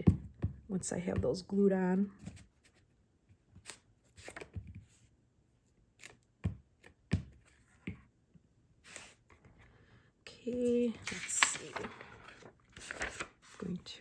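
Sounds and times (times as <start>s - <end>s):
paper rustling: 10.8s - 14.0s.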